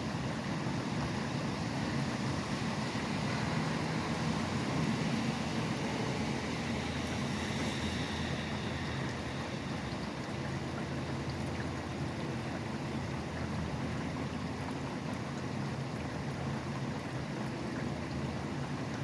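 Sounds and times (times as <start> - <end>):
highway traffic rumble: 0.0 - 17.4.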